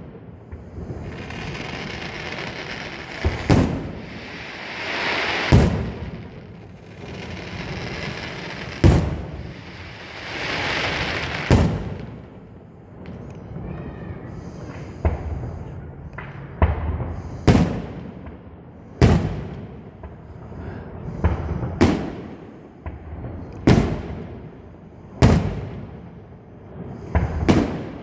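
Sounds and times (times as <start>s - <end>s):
firework crackling hiss: 0.0s - 18.3s, 26.8s - 28.0s
firework bangs: 0.0s - 28.0s.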